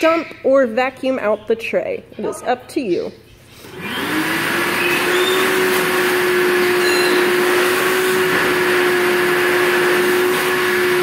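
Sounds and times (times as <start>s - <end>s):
vacuum cleaner running: 3.5s - 11.0s.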